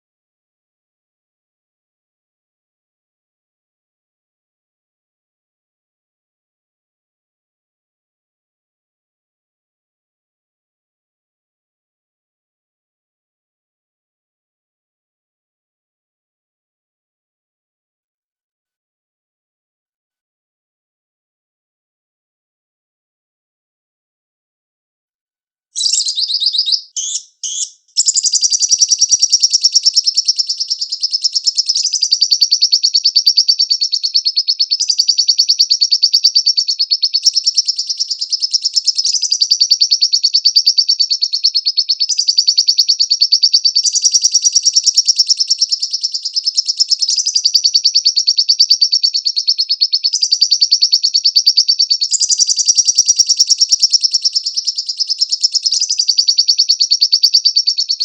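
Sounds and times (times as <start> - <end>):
bird chattering trill: 25.8 - 58.0.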